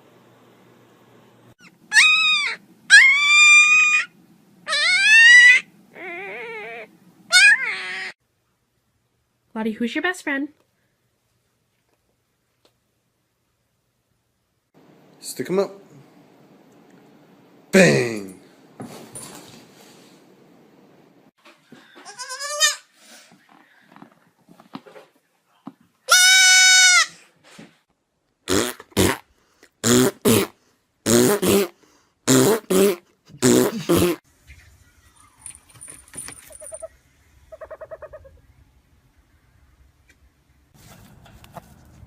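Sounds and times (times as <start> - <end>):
goat bleating: 22.0 - 22.9.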